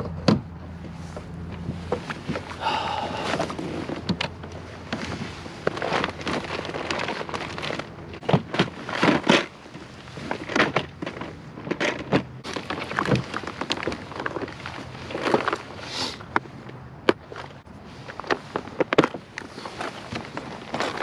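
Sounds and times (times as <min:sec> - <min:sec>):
fishing gear knocking and rattling: 0:01.9 - 0:15.7.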